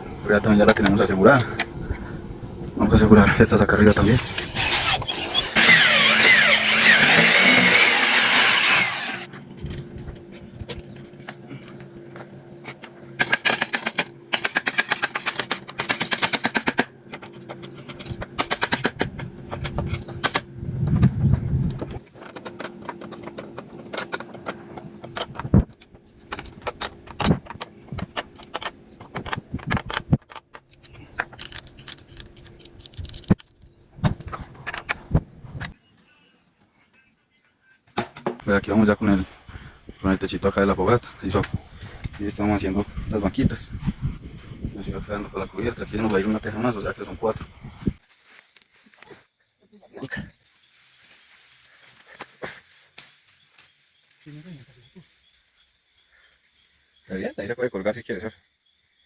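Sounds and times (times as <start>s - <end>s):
loud scraping noise: 2.9s - 9.3s
impact driver driving screws: 3.9s - 9.3s.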